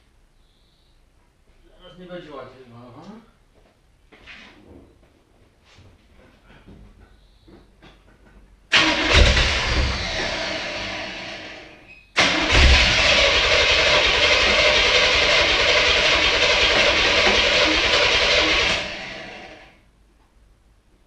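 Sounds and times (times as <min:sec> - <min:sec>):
car engine starting and running: 0:08.7 - 0:19.8.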